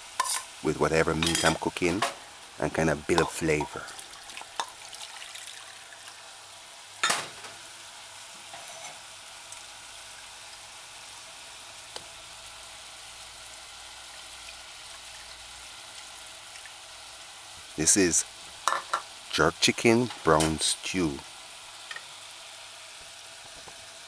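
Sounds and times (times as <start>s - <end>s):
chicken and onions sizzling in oil: 0.0s - 19.4s, 20.2s - 24.0s.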